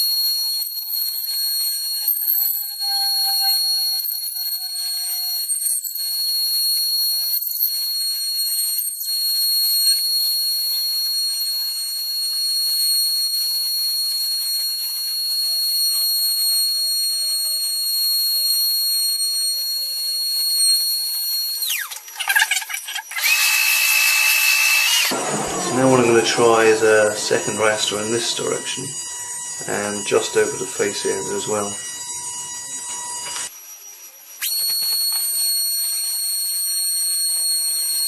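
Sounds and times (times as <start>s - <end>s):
router spindle whining: 0.0s - 38.0s
low drifting tone: 25.1s - 31.7s.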